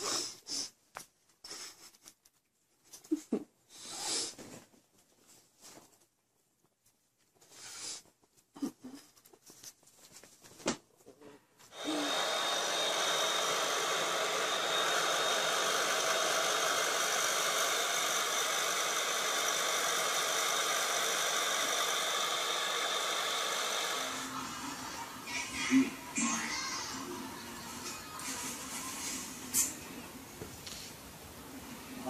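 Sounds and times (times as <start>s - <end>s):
hair dryer blowing: 11.7s - 26.2s.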